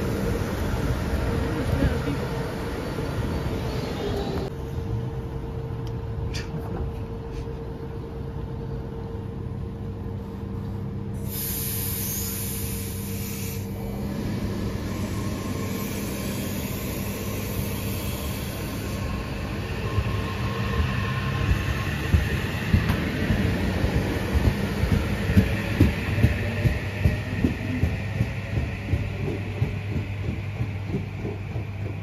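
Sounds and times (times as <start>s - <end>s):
train equipment humming: 0.0s - 32.0s
air hiss: 11.2s - 13.8s
train clunks: 15.0s - 32.0s.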